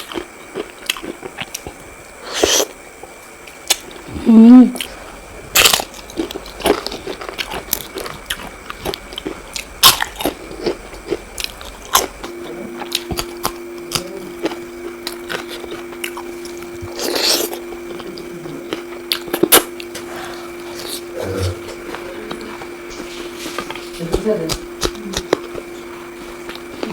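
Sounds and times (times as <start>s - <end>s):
crunchy chewing: 0.0s - 26.9s
low hum: 3.4s - 26.9s.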